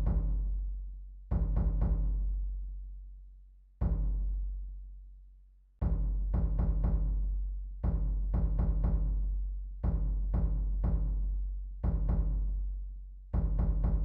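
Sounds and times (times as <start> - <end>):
deep booming drum strikes: 13.4 - 14.0.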